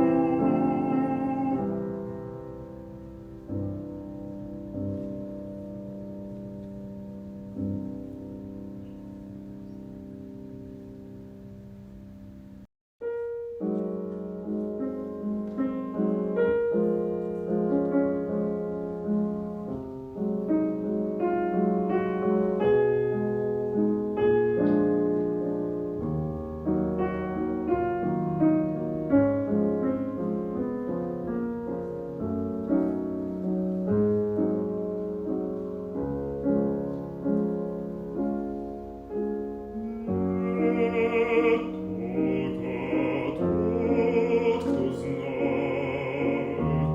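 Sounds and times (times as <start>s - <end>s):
bass voice singing: 0.0s - 2.0s, 39.8s - 46.9s
classical piano: 0.0s - 46.9s.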